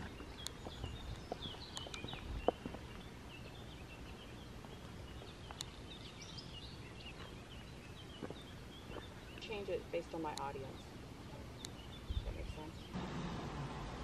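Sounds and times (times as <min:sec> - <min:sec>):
small birds chirping: 0:00.0 - 0:13.0
low outdoor rumble: 0:06.6 - 0:14.0.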